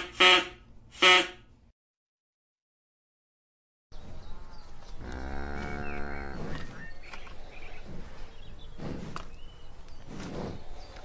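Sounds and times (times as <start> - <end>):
outdoor background noise: 0.0 - 1.7, 3.9 - 11.0
cow mooing: 5.0 - 6.6.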